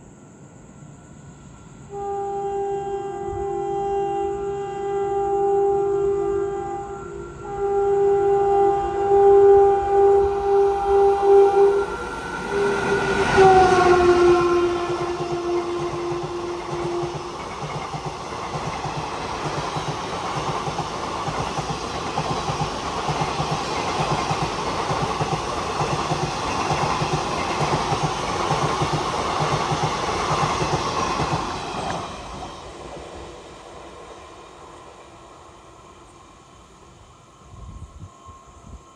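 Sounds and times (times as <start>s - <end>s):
two-tone train horn: 1.9s - 17.8s
train wheels clattering on rail joints: 12.8s - 33.6s.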